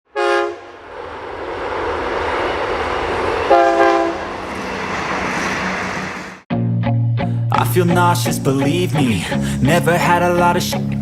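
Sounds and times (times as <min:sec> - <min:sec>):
train horn blasts: 0:00.1 - 0:00.8, 0:03.5 - 0:04.3
rumble of passing train: 0:00.1 - 0:06.5.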